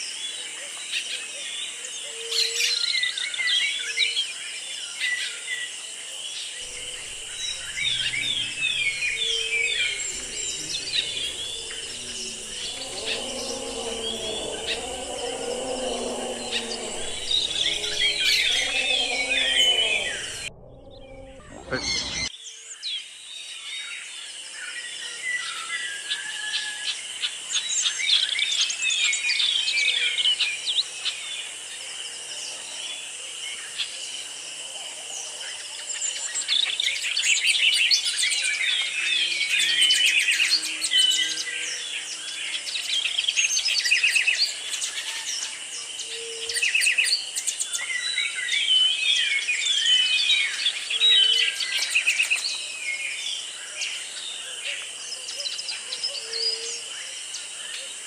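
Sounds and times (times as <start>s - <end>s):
high-pitched drone: 6.6s - 22.3s.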